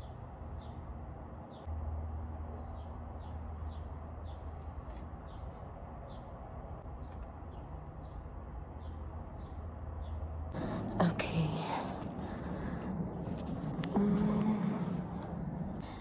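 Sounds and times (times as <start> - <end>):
low steady rumble: 10.5 - 16.0.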